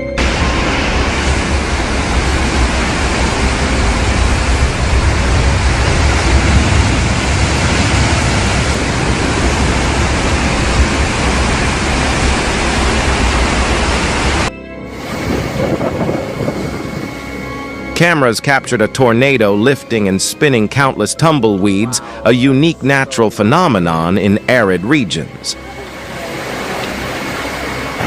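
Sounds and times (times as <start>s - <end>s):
loud rushing noise: 0.1s - 18.1s.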